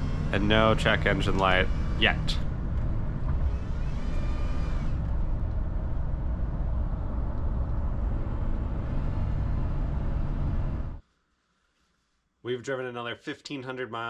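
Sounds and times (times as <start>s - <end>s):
pickup truck engine driving: 0.0s - 11.0s
road rumble: 0.0s - 11.0s.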